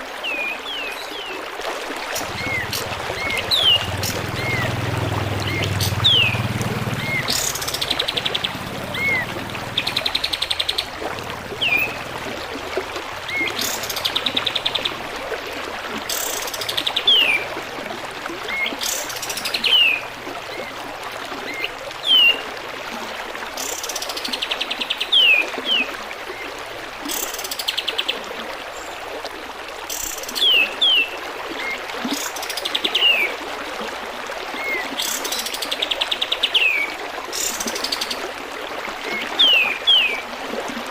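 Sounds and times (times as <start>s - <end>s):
running water trickle: 0.0s - 40.9s
bird song: 2.2s - 4.8s, 5.4s - 11.0s, 11.6s - 12.1s, 13.3s - 15.0s, 16.1s - 17.5s, 18.5s - 20.1s, 39.2s - 40.2s.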